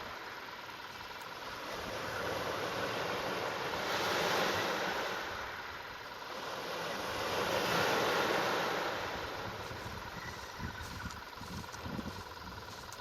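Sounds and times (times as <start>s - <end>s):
sea waves washing in: 0.0s - 10.1s.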